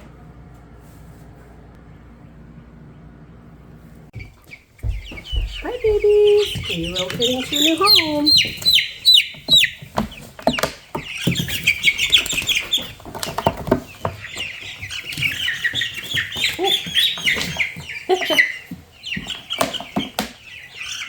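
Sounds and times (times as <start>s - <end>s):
chicks peeping: 1.9s - 21.0s
knocks and rustles: 4.1s - 17.9s.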